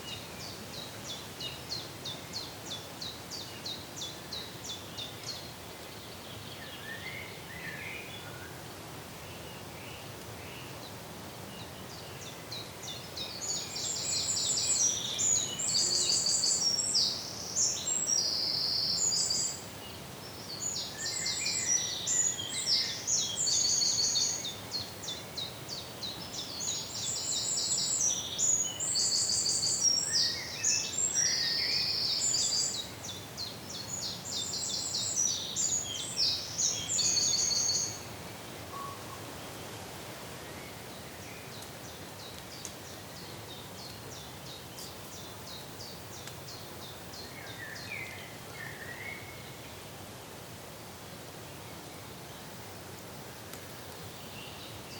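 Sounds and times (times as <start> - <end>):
outdoor background hiss: 0.0 - 54.9.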